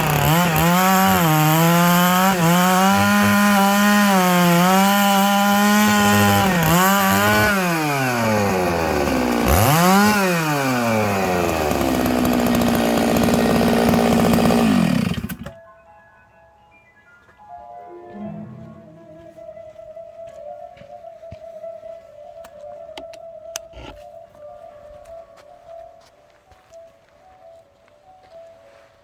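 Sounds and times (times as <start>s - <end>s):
chainsaw cutting logs: 0.0s - 15.6s, 23.6s - 24.0s
faint music: 15.5s - 29.0s.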